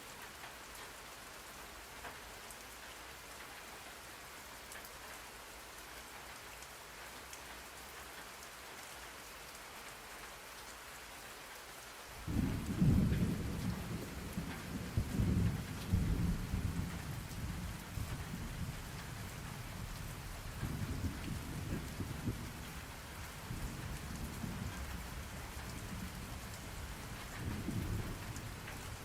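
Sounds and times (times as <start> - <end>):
rain hissing: 12.1 - 29.0
thunder rumbling: 12.2 - 29.0.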